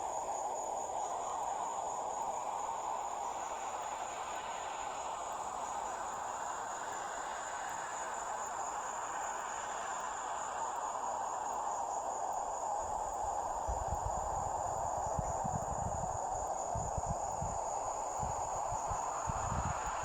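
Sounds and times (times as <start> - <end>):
crickets trilling: 0.0 - 20.0
wind buffeting microphone: 13.7 - 20.0.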